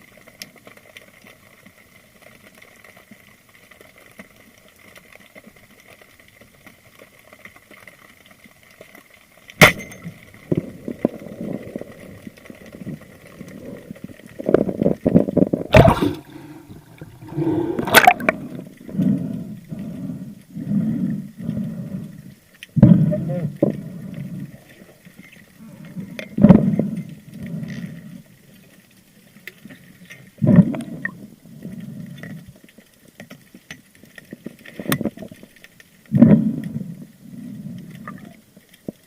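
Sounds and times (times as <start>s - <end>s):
underwater water sounds: 0.0s - 39.0s
faint steady whine: 9.6s - 38.8s
water splashing and gurgling: 9.6s - 39.0s.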